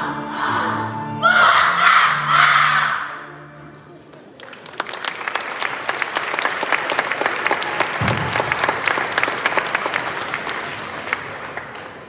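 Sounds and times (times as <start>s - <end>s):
audience clapping: 4.1s - 12.0s.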